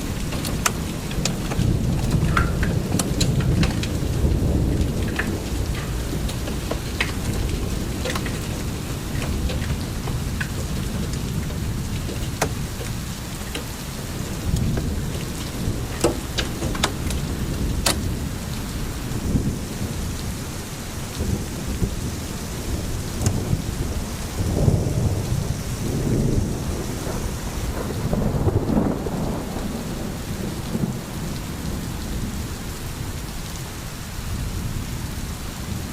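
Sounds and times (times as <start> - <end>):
hailstones striking: 0.0 - 19.7
low rumble of wind and rain: 0.0 - 35.9.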